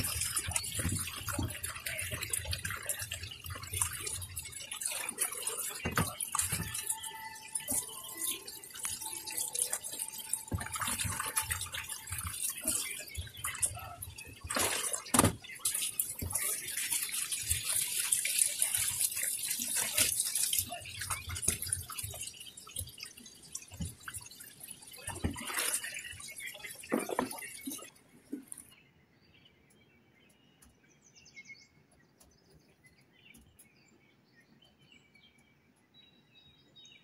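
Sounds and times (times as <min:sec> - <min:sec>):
splashing and knocks of rinsing fish: 0:00.0 - 0:28.5
tap water running into basin: 0:00.0 - 0:28.6.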